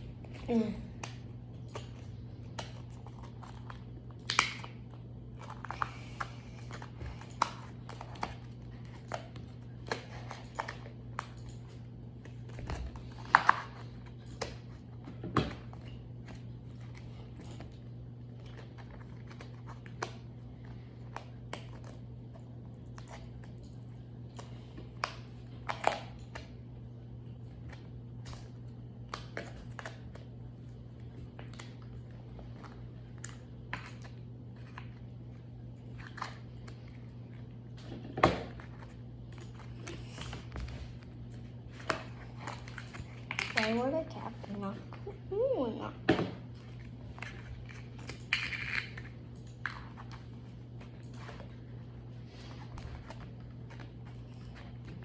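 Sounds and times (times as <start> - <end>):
steady low hum: 0.0 - 55.0
wet clicks and crackly pops: 1.0 - 11.8.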